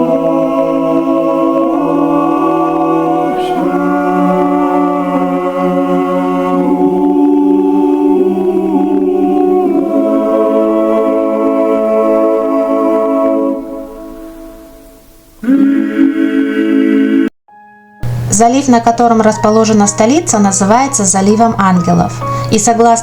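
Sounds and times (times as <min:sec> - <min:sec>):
choir singing slow chords: 0:00.0 - 0:18.3.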